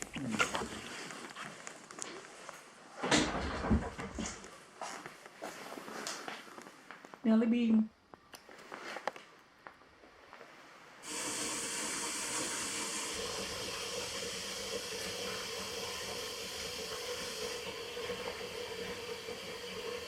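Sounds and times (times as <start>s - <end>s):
running water rushing: 11.0s - 20.0s.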